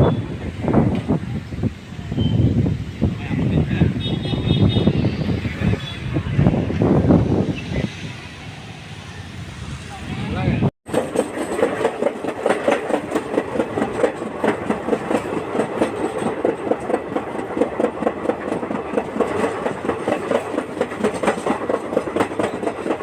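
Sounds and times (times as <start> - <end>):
train wheels clattering on rails: 10.8 - 23.0.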